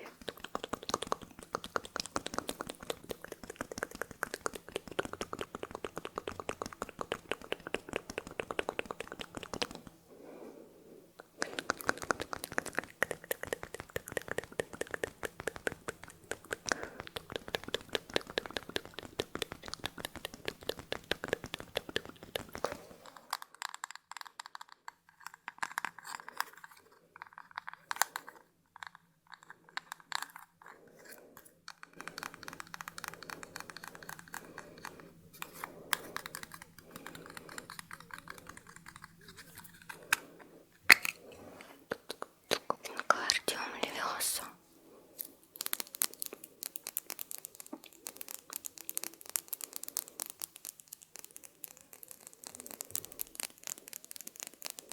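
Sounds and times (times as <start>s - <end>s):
rapid crackling and tapping: 0.0s - 10.0s, 11.3s - 24.9s, 31.9s - 40.3s, 45.2s - 54.9s.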